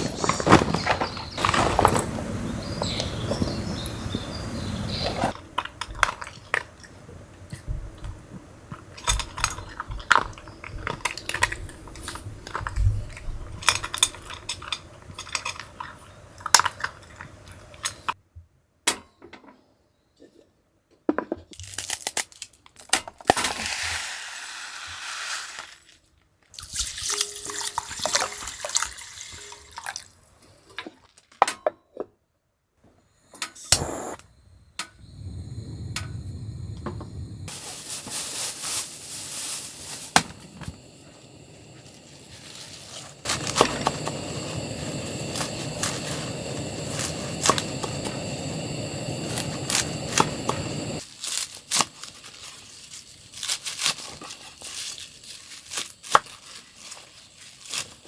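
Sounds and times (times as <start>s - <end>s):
hissing water-like noise: 33.6s - 34.2s, 35.0s - 51.1s.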